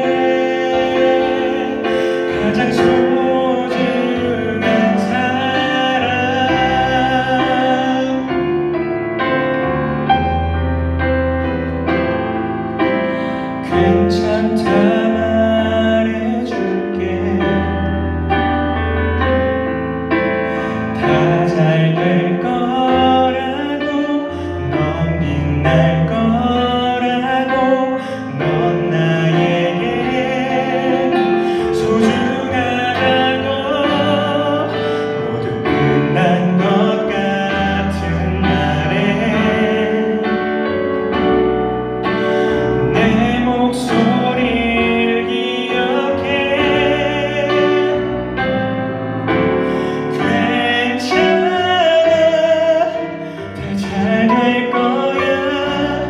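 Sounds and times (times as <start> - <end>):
person singing a slow ballad: 0.0 - 19.2, 20.2 - 56.0
piano and band accompaniment: 0.0 - 56.0.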